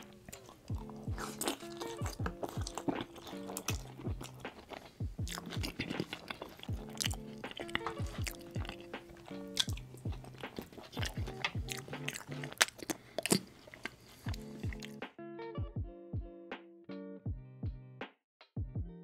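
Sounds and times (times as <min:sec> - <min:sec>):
background music: 0:00.0 - 0:13.4, 0:14.2 - 0:19.0
crunchy bites: 0:00.0 - 0:15.0
wet chewing: 0:00.0 - 0:15.0.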